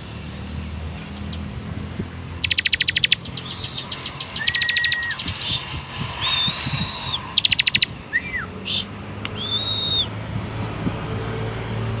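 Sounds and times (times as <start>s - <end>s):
bird chirps: 2.4s - 10.0s
bird whistling and trilling: 2.4s - 10.1s.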